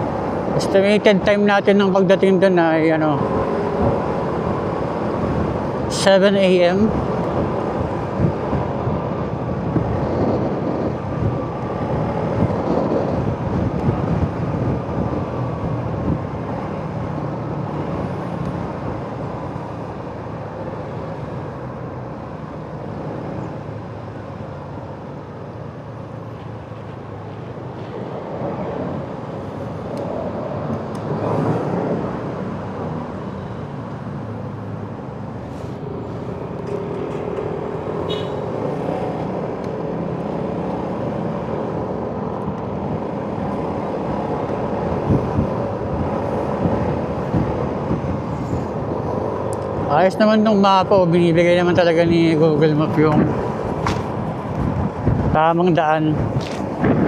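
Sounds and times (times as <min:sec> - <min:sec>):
road noise: 0:00.0 - 0:57.0
wind noise on microphone: 0:03.0 - 0:21.7, 0:35.4 - 0:57.0.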